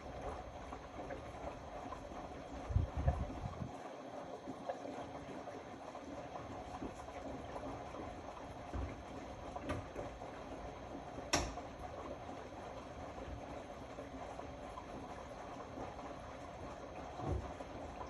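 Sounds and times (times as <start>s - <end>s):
washing machine drum turning: 8.7s - 10.2s, 11.1s - 11.9s.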